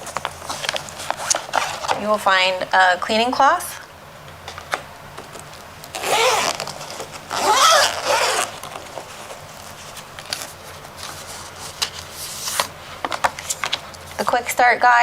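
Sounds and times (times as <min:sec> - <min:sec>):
packaging rustling and sliding: 0:00.0 - 0:02.1, 0:04.6 - 0:14.2.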